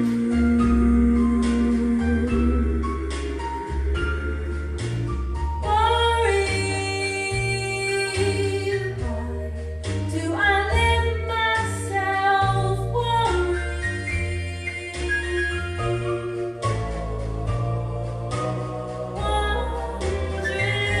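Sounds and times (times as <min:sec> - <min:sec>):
instrumental accompaniment with bass: 0:00.0 - 0:21.0
woman singing country ballad: 0:05.7 - 0:09.4, 0:10.1 - 0:16.0.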